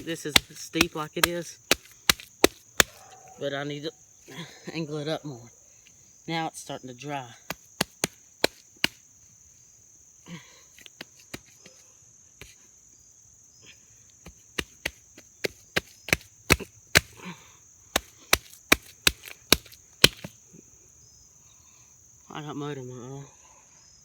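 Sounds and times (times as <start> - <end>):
wet mud slapping: 0.0 - 3.0, 7.5 - 9.0, 14.3 - 17.3, 18.0 - 20.4
crickets chirping: 0.0 - 24.0.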